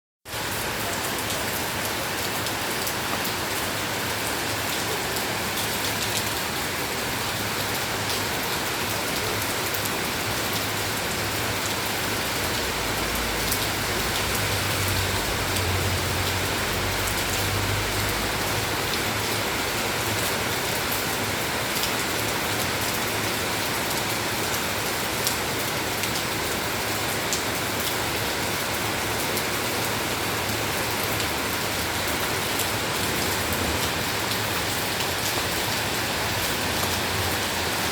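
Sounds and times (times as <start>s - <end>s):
rain drops ticking: 7.6s - 37.9s.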